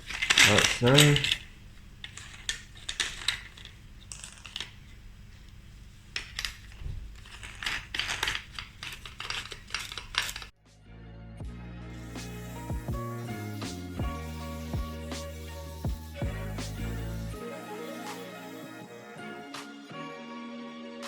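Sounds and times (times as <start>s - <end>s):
background music: 10.6s - 21.0s.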